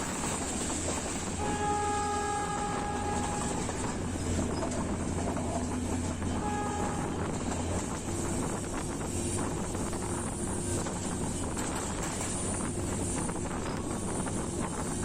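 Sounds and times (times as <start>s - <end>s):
train engine low rumble: 0.0s - 15.0s
train horn: 1.3s - 9.6s.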